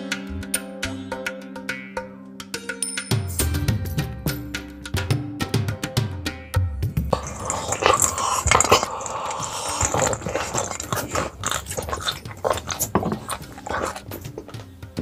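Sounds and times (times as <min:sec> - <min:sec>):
crunching and chewing: 0:07.1 - 0:15.0.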